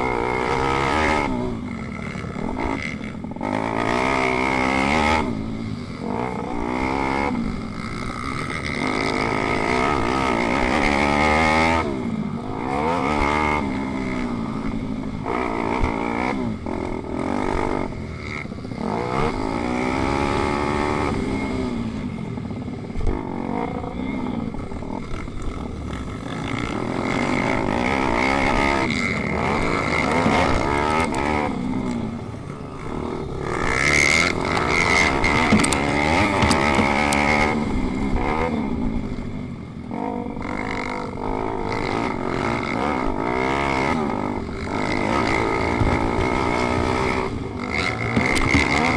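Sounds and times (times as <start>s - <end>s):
small motorcycle engines revving: 0.0s - 48.9s.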